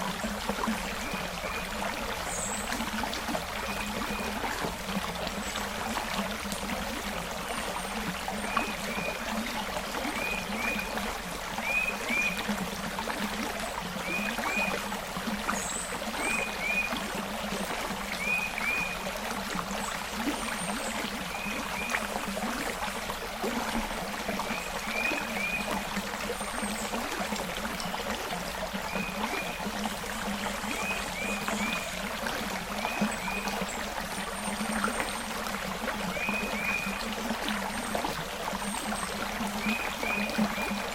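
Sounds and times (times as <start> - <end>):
creek water flowing: 0.0 - 40.9.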